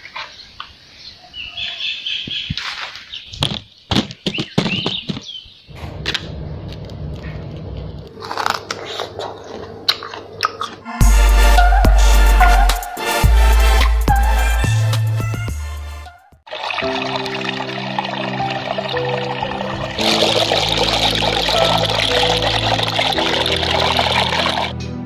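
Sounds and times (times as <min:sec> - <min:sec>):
birds chirping: 0:00.0 - 0:05.8
knocks and rustles: 0:02.3 - 0:06.3
low hum: 0:05.7 - 0:08.2
music: 0:11.0 - 0:25.0.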